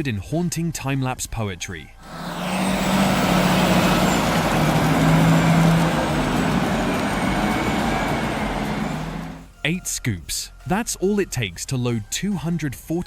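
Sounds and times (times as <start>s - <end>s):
heavy machine engine rumbling: 2.0s - 9.5s.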